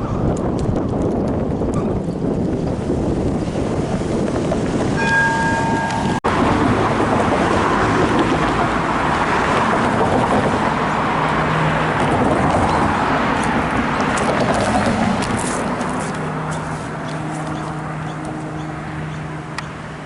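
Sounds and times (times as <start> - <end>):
vehicle rushing past: 3.5 - 19.4.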